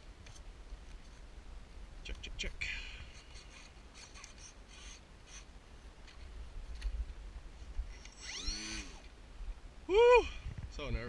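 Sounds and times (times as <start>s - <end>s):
person calling out: 9.9s - 10.4s
wind on microphone: 10.2s - 11.0s.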